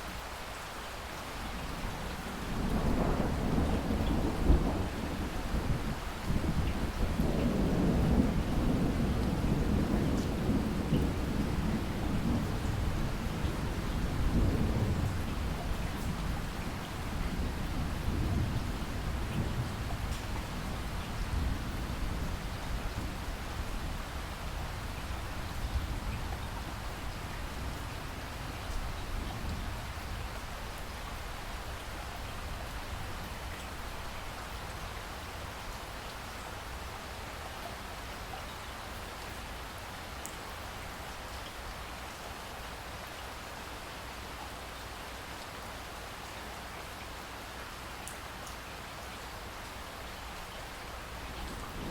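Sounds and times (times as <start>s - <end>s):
steady rain: 0.0s - 51.9s
rolling thunder: 2.4s - 16.4s, 51.3s - 51.9s
raindrop ticks: 40.2s - 40.4s.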